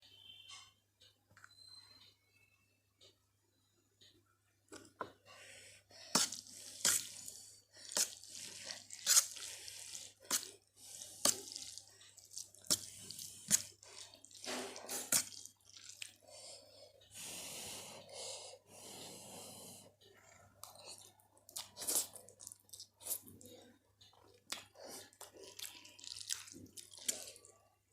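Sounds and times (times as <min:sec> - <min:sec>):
wet sticky noodle clicks: 0:24.4 - 0:27.6.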